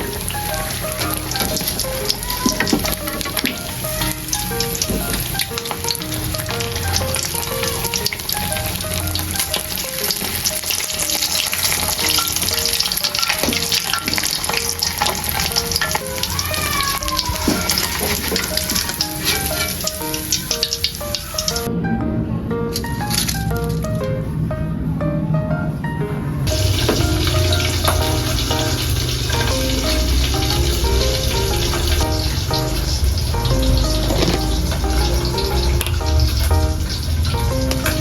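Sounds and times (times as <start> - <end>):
food sizzling in hot oil: 0.0 - 21.7, 26.5 - 37.8
light background music: 0.0 - 38.0.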